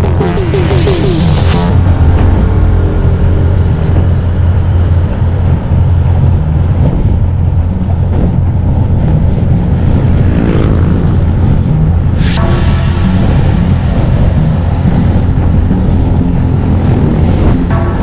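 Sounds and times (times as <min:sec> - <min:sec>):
wind rumble on microphone: 0:01.7 - 0:18.0.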